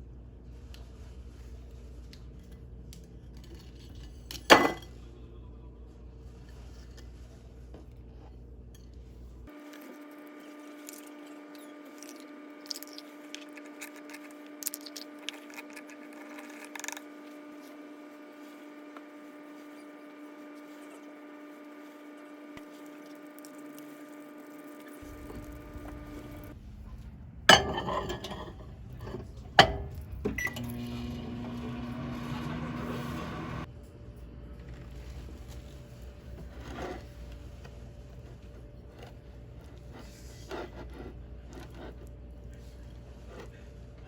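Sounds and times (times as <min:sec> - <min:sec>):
microwave oven humming: 0:08.6 - 0:26.6, 0:27.5 - 0:40.3.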